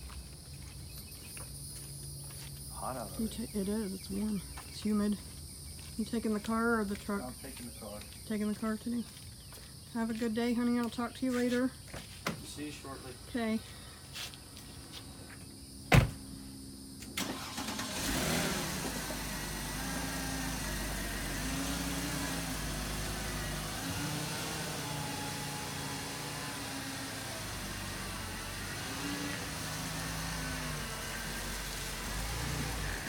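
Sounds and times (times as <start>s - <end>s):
car door slamming: 15.9s - 16.3s
car engine starting and idling: 17.0s - 33.0s.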